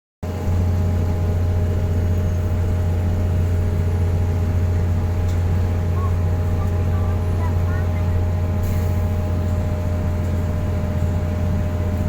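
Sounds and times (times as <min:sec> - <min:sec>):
car engine and road drone: 0:00.2 - 0:12.0.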